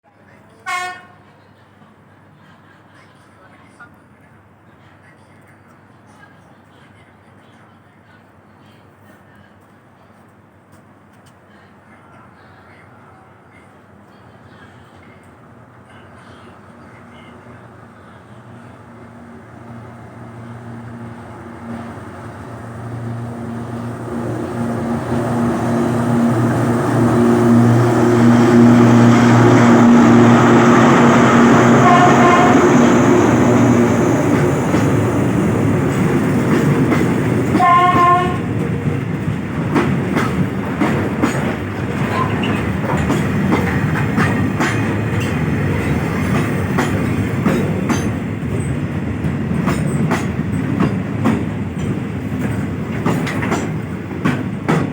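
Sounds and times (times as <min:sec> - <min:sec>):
locomotive horn blasts: 0:00.6 - 0:01.2, 0:24.8 - 0:34.0, 0:37.5 - 0:38.6
diesel locomotive engine drone: 0:12.4 - 0:54.9
train wheels clacking on rails: 0:21.1 - 0:54.9.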